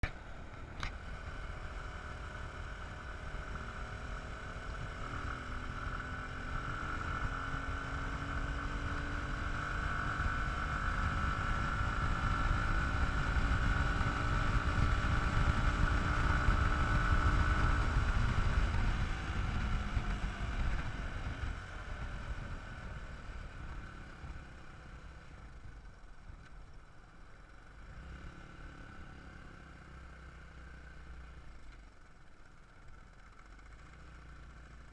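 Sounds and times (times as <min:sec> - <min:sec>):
dirt bike engine running: 0:00.0 - 0:27.6.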